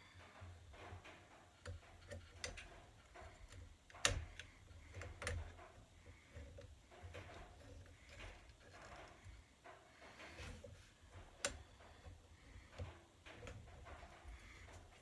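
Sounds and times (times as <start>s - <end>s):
clicks and taps of small parts: 0.8s - 9.3s.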